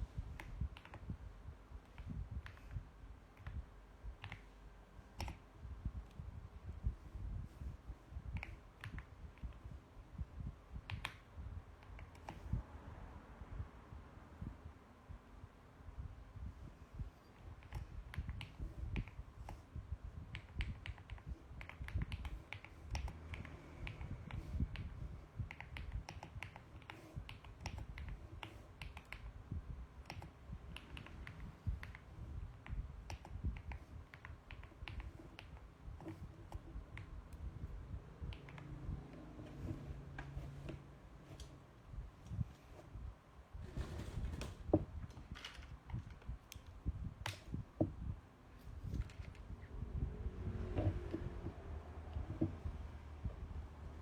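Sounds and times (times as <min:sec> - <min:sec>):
mechanical keyboard key clicks: 0:04.2 - 0:04.5, 0:05.1 - 0:05.4, 0:10.9 - 0:11.2, 0:20.3 - 0:29.3
mechanical keyboard typing: 0:20.3 - 0:29.4, 0:30.0 - 0:41.6.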